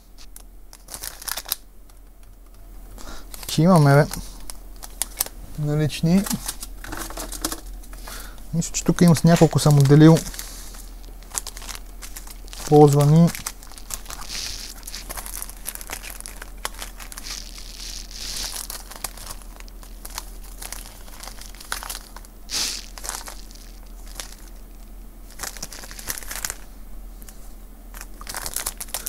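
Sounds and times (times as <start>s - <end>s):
plastic bags crinkling: 0.3s - 2.3s, 2.9s - 29.0s.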